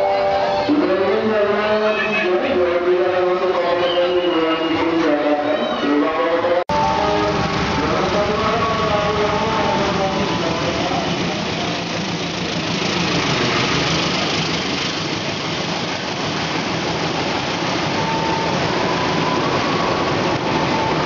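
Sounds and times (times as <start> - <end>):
diesel locomotive engine passing: 6.7 - 21.0
train wheels rumbling on rails: 6.7 - 21.0.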